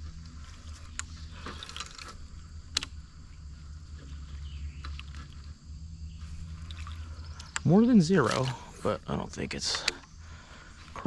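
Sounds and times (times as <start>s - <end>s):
faint insect buzzing: 0.0s - 11.0s
steady low rumble: 0.0s - 11.0s
light clicks: 0.7s - 3.0s, 6.6s - 7.7s, 9.5s - 10.2s.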